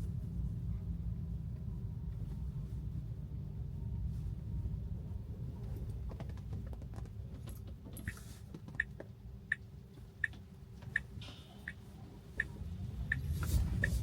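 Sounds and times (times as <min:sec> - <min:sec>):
road rumble inside car: 0:00.0 - 0:14.0
turn signal ticking: 0:08.0 - 0:14.0.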